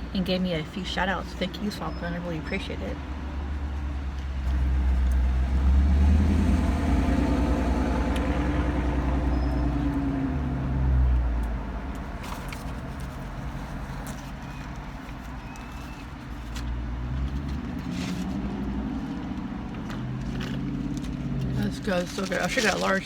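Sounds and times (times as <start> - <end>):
car engine passing by: 4.4 - 14.2.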